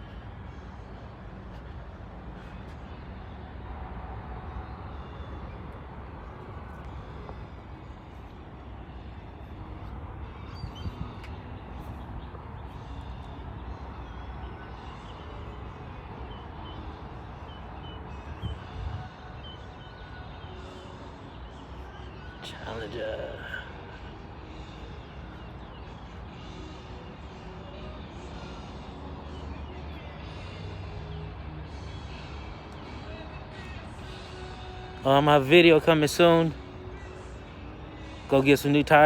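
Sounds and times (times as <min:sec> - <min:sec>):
outdoor background rumble: 0:00.0 - 0:36.0.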